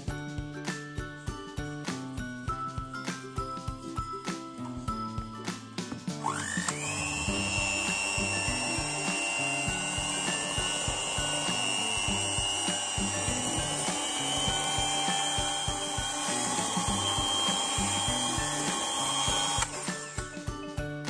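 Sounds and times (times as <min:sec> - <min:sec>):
background music: 0:00.0 - 0:21.0
electric hand mixer whining: 0:06.2 - 0:20.8
beaters churning batter: 0:06.3 - 0:20.0.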